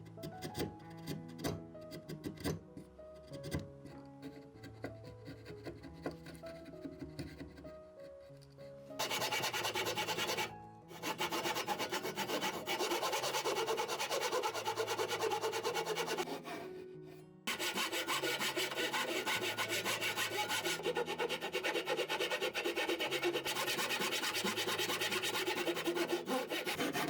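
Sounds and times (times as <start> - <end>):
quiet background music: 0.0 - 27.0
hand tool stroking wood: 9.0 - 16.8, 17.5 - 27.0.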